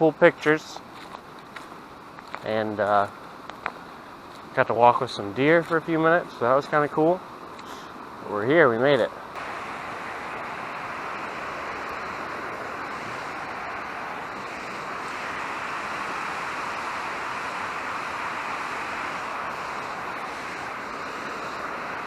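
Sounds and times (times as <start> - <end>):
waterfall roaring: 9.4 - 22.0.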